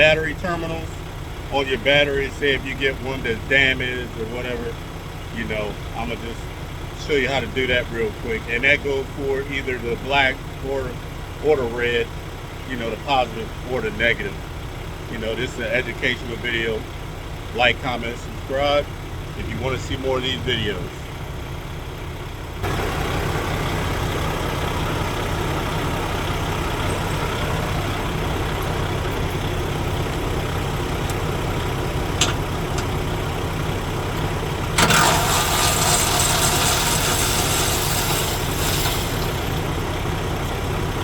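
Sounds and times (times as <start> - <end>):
diesel truck engine idling: 0.0 - 41.0.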